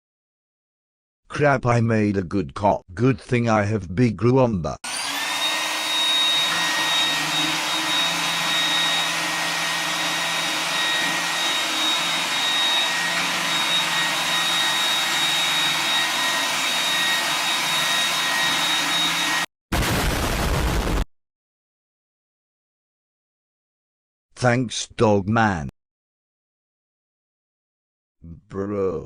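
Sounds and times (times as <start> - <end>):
vacuum cleaner whining: 4.8 - 19.5.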